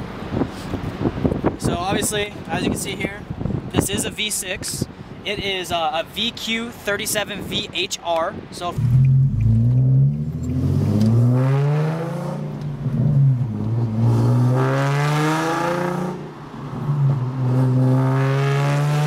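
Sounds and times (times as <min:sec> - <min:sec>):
car engine revving: 0:08.8 - 0:19.0.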